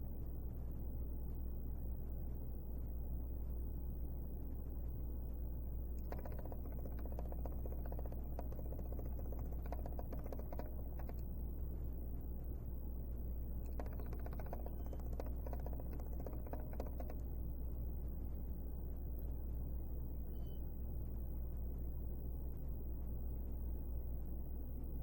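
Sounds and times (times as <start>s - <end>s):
low electrical hum: 0.0s - 25.0s
small clicks: 5.8s - 11.9s, 13.5s - 17.4s.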